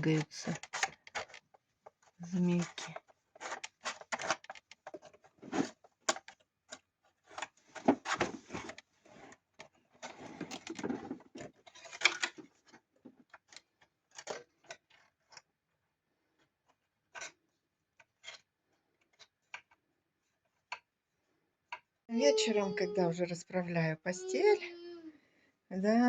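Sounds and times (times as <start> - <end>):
busy board clicks and rattles: 0.0 - 8.9, 9.6 - 15.5.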